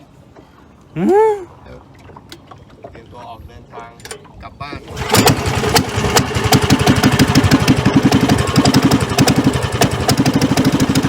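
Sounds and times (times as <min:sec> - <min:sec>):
boat engine idling: 0:04.6 - 0:11.0.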